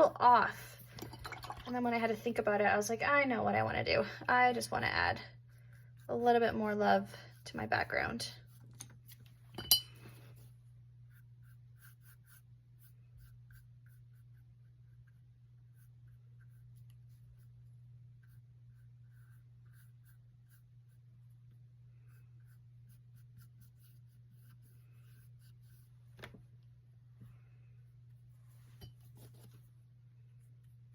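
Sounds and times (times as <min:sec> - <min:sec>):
steady low hum: 0:00.0 - 0:30.9
paintbrush strokes on canvas: 0:10.2 - 0:26.1.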